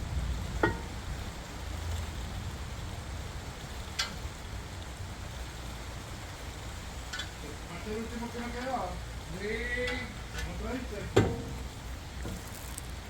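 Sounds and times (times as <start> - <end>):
low steady hum: 0.0 - 13.0
sharp clicks of brake parts: 3.9 - 4.2, 7.0 - 7.4, 9.8 - 13.0.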